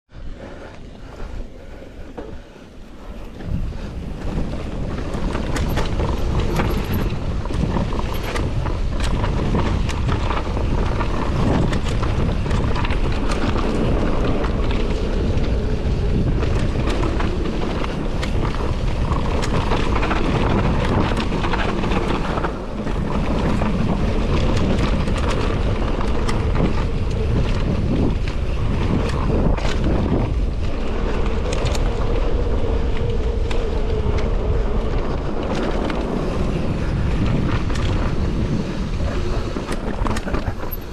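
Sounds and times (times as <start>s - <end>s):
wind buffeting microphone: 0.1s - 40.9s
bike clicks and rattles: 0.2s - 40.9s
tyres rumbling over dirt and rock: 3.2s - 40.9s.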